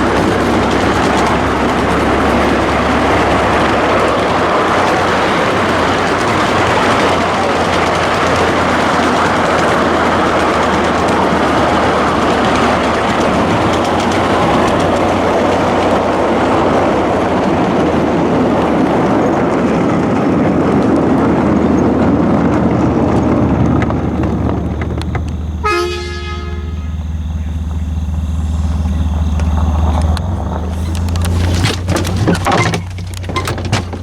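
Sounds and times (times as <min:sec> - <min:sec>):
diesel locomotive engine rumble: 0:00.0 - 0:34.0
train rushing rail noise: 0:00.0 - 0:34.0
train horn blast: 0:25.5 - 0:29.8.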